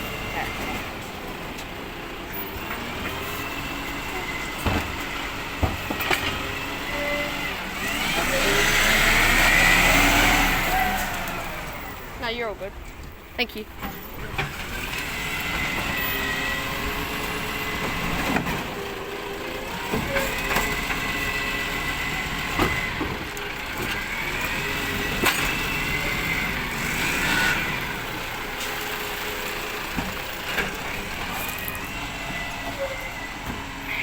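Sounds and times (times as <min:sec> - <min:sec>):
truck engine whining: 0:00.0 - 0:34.0
sharp knocks and clanks: 0:04.5 - 0:06.4.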